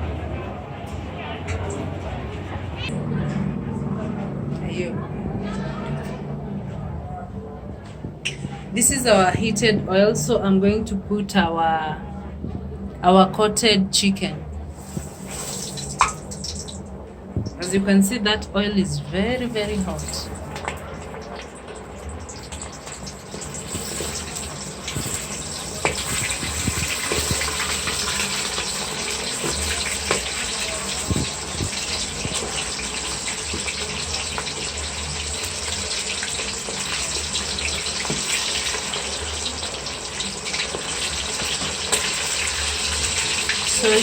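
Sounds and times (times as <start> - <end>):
chicken deep-frying in hot oil: 14.7 - 16.8, 19.3 - 44.0.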